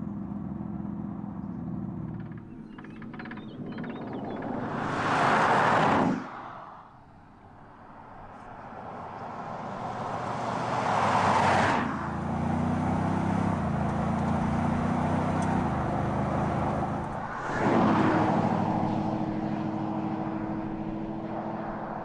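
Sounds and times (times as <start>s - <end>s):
engine and exhaust drone: 0.0s - 22.0s
suv passing by at speed: 4.2s - 7.0s, 8.2s - 22.0s.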